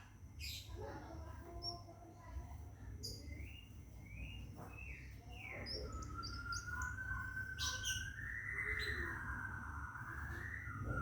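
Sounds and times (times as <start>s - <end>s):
bird chirps: 0.0s - 1.9s, 2.8s - 11.0s
bird wavering whistle: 4.1s - 11.0s.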